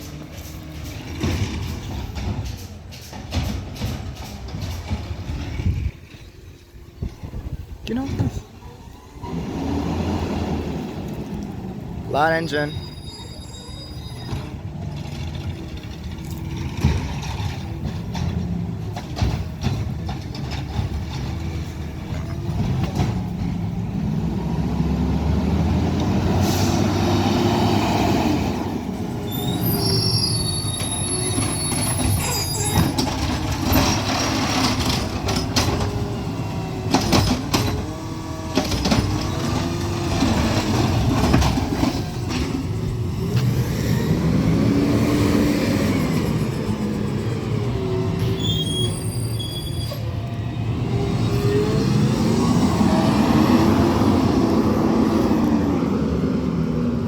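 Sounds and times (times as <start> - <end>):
garbage truck diesel engine: 0.0 - 57.0
high-pitched squeals: 12.4 - 15.1, 29.2 - 33.1, 45.8 - 50.2.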